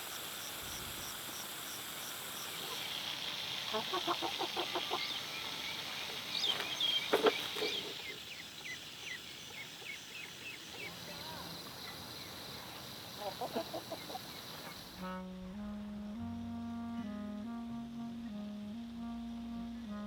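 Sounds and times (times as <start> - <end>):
insects hissing: 0.0 - 15.2
chickens clucking: 2.5 - 8.7, 10.7 - 15.0.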